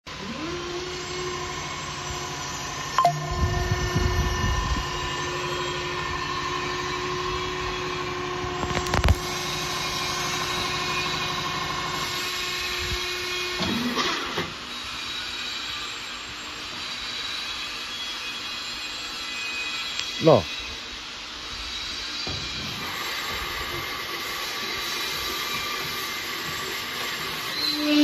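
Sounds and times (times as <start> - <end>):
forklift motor whining: 0.1 - 14.6.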